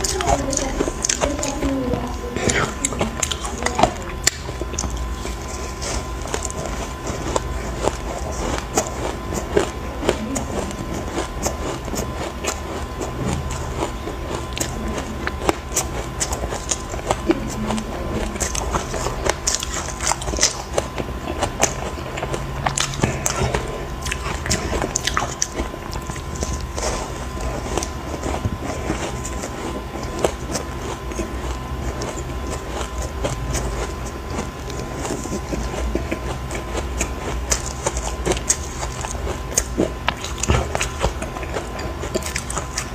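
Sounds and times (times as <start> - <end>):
chewing ice chunks: 0.0 - 42.9.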